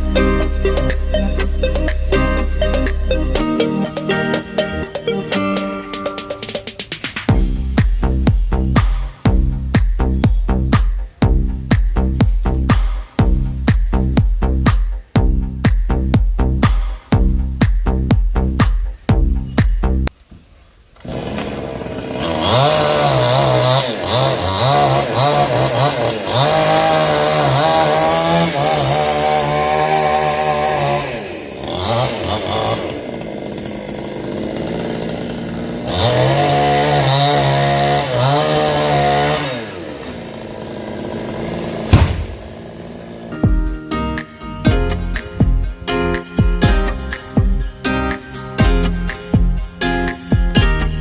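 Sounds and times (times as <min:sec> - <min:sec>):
chainsaw cutting wood: 0:21.0 - 0:43.5.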